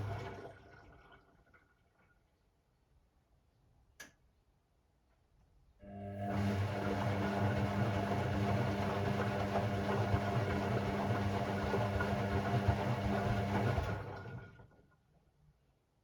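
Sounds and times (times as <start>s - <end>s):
washing machine motor humming: 0.0s - 0.8s, 5.8s - 14.7s.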